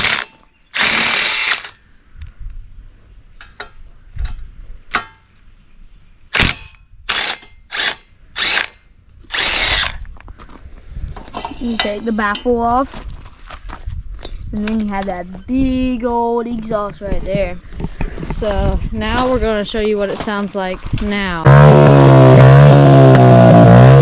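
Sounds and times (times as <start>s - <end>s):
power drill spinning bolts: 0.0s - 1.8s, 6.4s - 10.1s.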